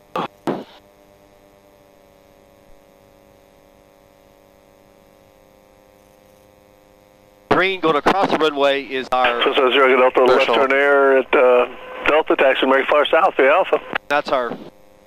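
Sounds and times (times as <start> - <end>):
electrical hum with fixed tones: 0.0 - 15.0
person speaking: 9.2 - 14.6.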